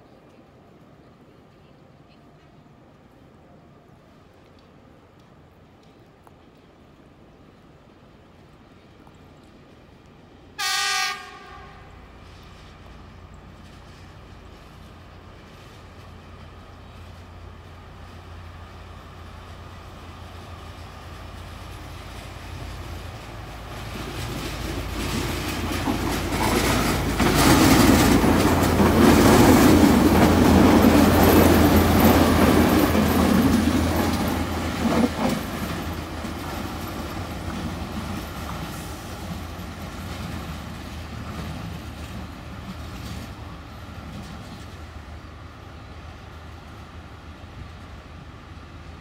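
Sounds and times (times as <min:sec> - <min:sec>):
train rumbling past: 0:00.0 - 0:49.0
wheels clattering over rail joints: 0:21.4 - 0:44.8.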